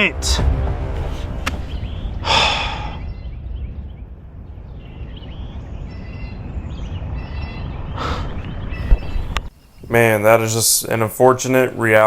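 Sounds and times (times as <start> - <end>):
steady low rumble: 0.0 - 10.0
faint bird chirps: 1.8 - 10.0.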